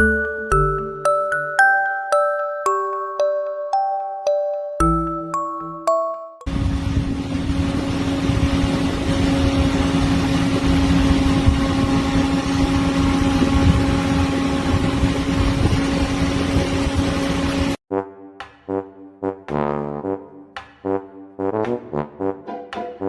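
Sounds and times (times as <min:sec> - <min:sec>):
motor droning: 0:06.5 - 0:17.8.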